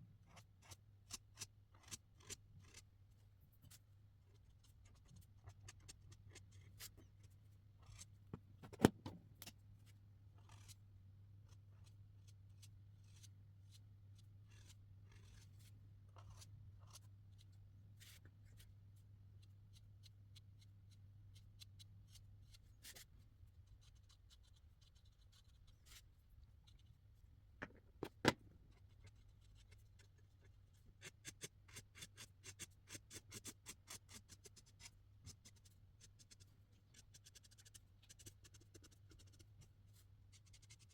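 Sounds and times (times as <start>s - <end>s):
markers stroking on paper: 14.5s - 17.1s, 31.2s - 40.9s.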